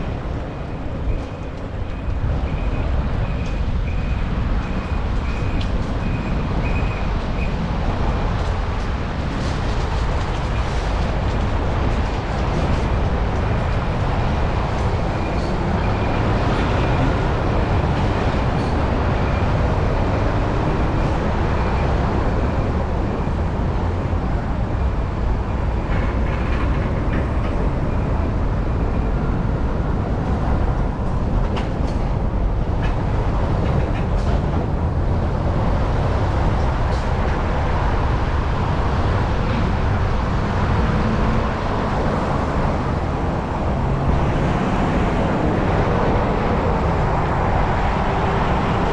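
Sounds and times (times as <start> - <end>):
bicycle tyre and road rumble: 0.0 - 48.9
wind buffeting microphone: 0.0 - 48.9.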